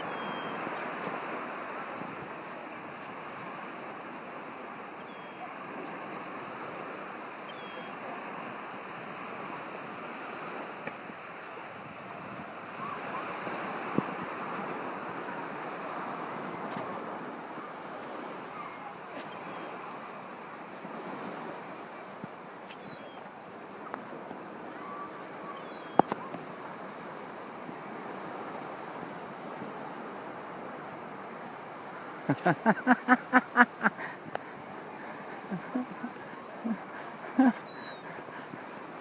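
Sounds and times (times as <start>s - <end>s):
surf washing on a beach: 0.0s - 39.0s.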